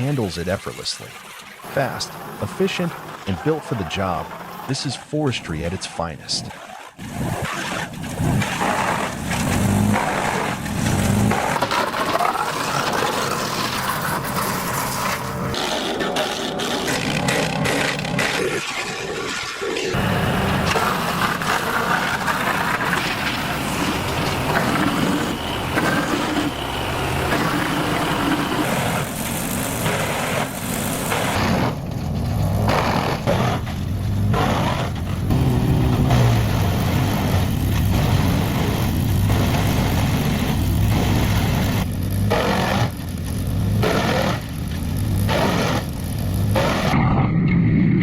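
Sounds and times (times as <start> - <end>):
wood chipper grinding wood: 0.0 - 47.0
engine hum: 0.0 - 48.0
short bursts of wood chipping: 27.0 - 47.0.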